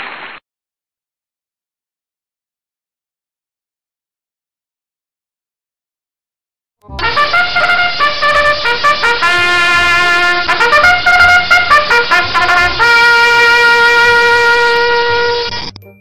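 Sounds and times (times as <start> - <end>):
trumpet playing a tune: 6.8 - 15.7.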